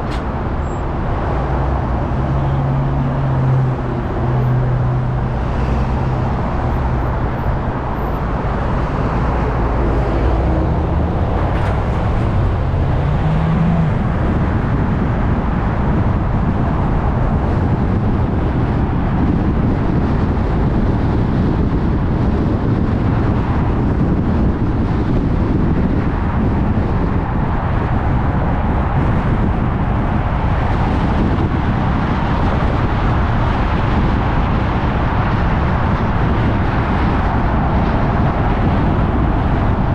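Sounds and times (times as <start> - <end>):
low engine hum: 0.0 - 39.9
tyre and road noise: 0.0 - 39.9
low rising tone: 1.4 - 15.2.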